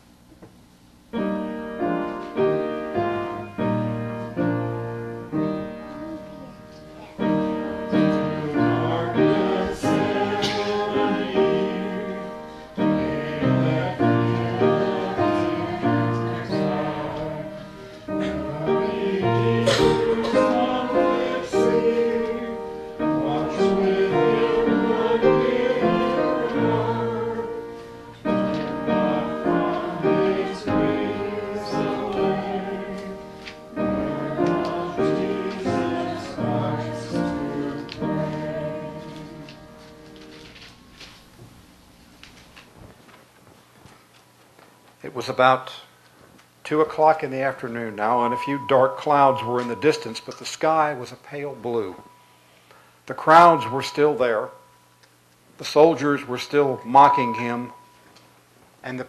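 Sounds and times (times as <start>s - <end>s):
piano playing: 1.1s - 40.5s, 47.7s - 52.2s, 53.2s - 54.8s, 55.9s - 58.1s
people singing: 7.4s - 39.8s, 48.0s - 50.3s, 53.3s - 54.5s, 56.6s - 57.8s.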